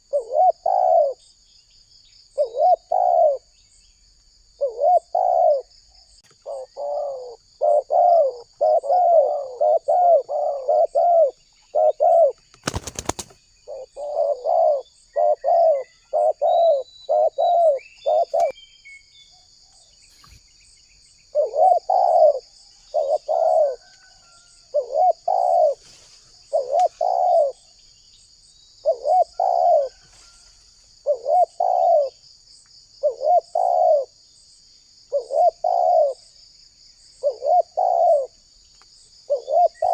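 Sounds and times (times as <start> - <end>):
dove cooing: 0.0 - 1.2, 2.4 - 3.5, 4.6 - 5.7, 6.4 - 18.5, 21.3 - 27.7, 28.8 - 30.4, 31.0 - 32.2, 33.0 - 34.2, 35.1 - 36.3, 37.2 - 38.4, 39.3 - 39.9
faint high insect trill: 0.0 - 39.9.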